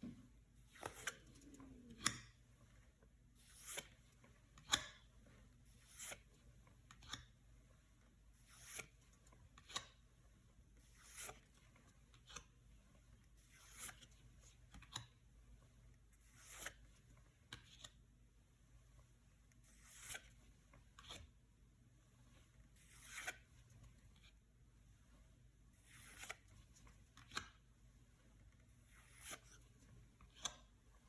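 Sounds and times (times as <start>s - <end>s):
cards sliding off a stack: 0.7s - 2.3s, 16.2s - 16.9s, 19.6s - 20.3s, 22.8s - 23.5s, 25.8s - 26.5s, 28.9s - 29.6s.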